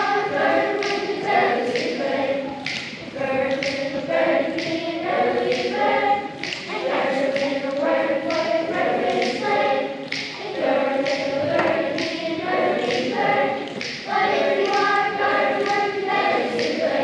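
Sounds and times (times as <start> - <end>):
choir singing a cappella: 0.0 - 17.0.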